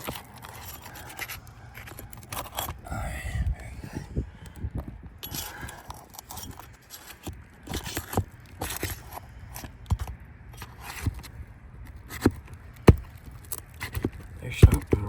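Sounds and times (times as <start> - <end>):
sharp knocks: 12.9 - 13.1.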